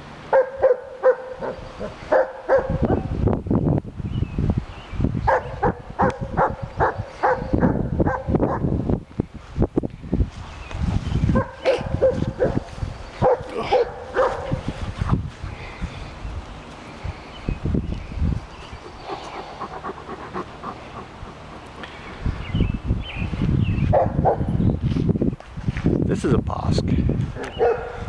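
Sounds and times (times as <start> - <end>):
dogs barking and yipping: 0.3 - 3.2, 5.2 - 8.8, 11.2 - 14.8, 18.7 - 22.5, 23.8 - 24.6, 27.4 - 28.0.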